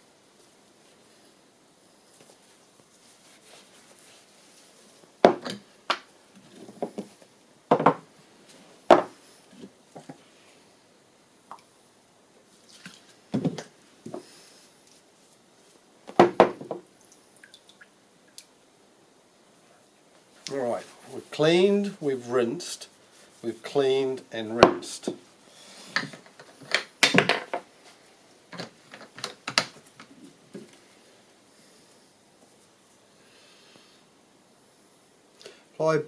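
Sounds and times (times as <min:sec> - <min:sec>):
objects knocking on workbench: 0:05.2 - 0:06.0, 0:07.7 - 0:08.0, 0:08.9 - 0:09.1, 0:16.1 - 0:16.8, 0:27.0 - 0:27.6.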